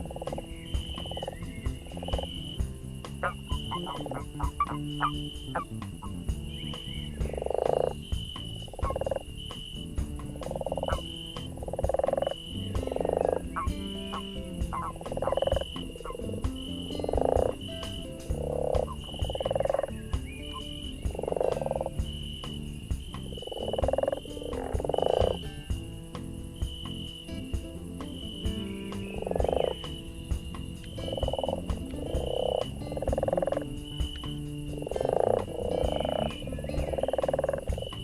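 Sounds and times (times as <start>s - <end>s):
high chirp: 0.0s - 10.0s
campfire crackling: 0.0s - 38.0s
frogs croaking: 0.0s - 38.0s.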